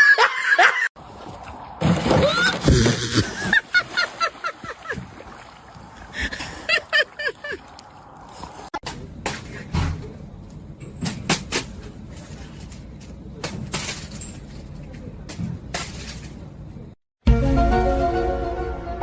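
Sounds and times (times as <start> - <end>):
music: 17.2 - 19.0.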